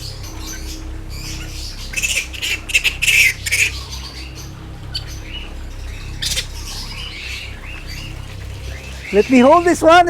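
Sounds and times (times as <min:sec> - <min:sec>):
bat screeching squawks: 0:01.9 - 0:03.9.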